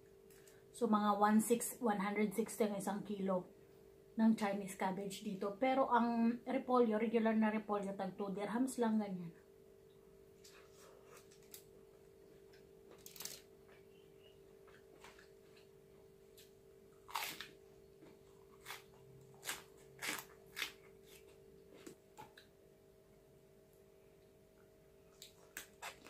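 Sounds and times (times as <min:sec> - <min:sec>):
faint steady hum: 0:00.0 - 0:26.0
chewing crunchy raw vegetables: 0:14.6 - 0:22.5, 0:25.1 - 0:26.0.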